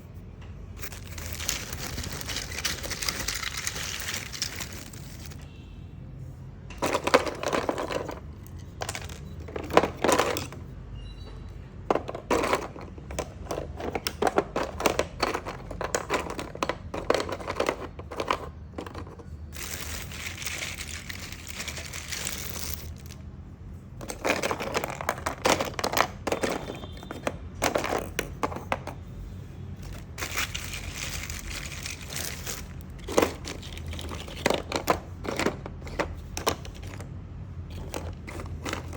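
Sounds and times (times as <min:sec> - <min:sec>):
small hard pieces clicking: 0:00.8 - 0:05.4, 0:12.0 - 0:23.2, 0:29.8 - 0:37.1.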